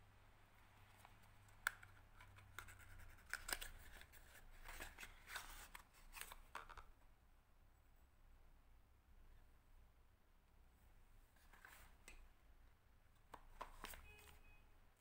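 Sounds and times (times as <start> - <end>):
close-up handling noises: 0.8 - 7.0, 11.2 - 12.4, 13.1 - 14.5.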